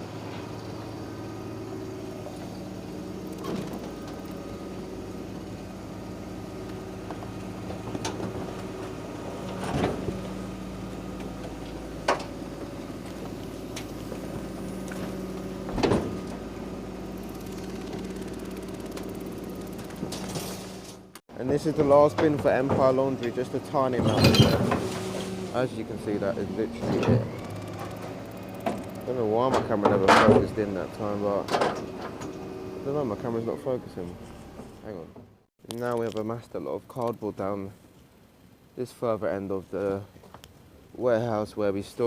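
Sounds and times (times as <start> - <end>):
garbage truck humming: 0.0 - 35.5
bins knocking and clanking: 19.9 - 25.5, 29.4 - 30.6.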